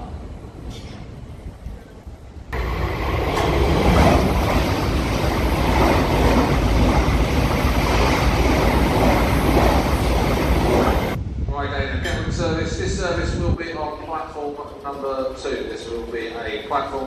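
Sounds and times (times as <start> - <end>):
passenger train passing at speed: 0.0 - 17.0.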